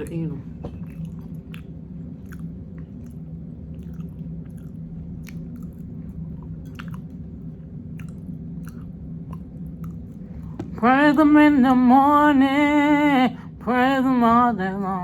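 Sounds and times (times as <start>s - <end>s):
steady low hum: 0.0s - 15.0s
person chewing with wet lip smacks: 0.6s - 10.8s.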